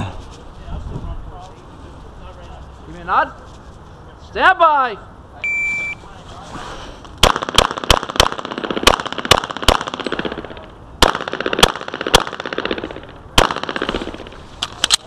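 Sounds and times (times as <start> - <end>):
pistol shots: 7.2 - 14.4.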